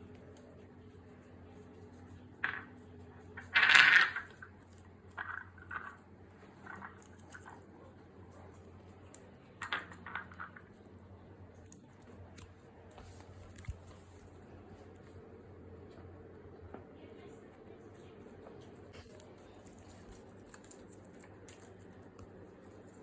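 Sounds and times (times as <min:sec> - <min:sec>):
bird clicking and scratching in cage: 0:19.0 - 0:23.0.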